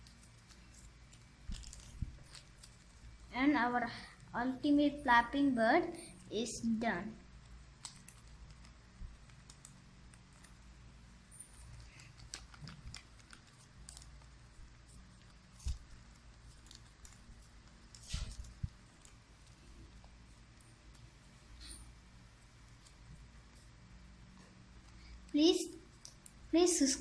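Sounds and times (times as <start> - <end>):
paper rustling and tapping: 11.6 - 20.2.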